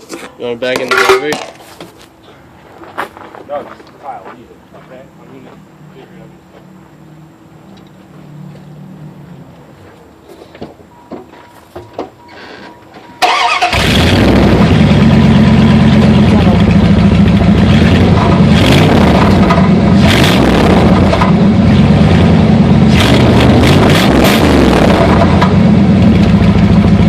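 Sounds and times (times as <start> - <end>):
engine cranking and starting: 13.2 - 14.8
loud engine idle: 13.8 - 18.6, 24.7 - 27.0.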